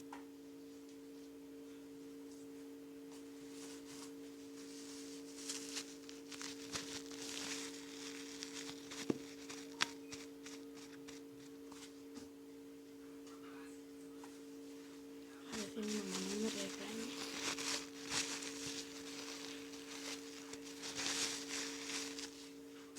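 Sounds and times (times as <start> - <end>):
two-note electrical hum: 0.0 - 22.9
rustling from handling things: 3.2 - 12.1, 15.5 - 22.6.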